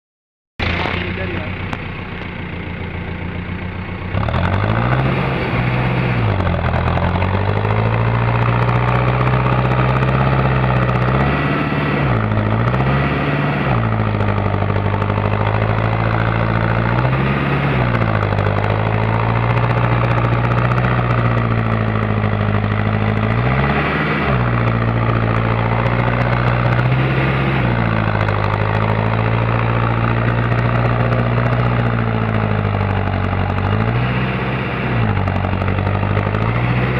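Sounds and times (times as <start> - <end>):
tractor engine labouring: 0.6 - 36.9.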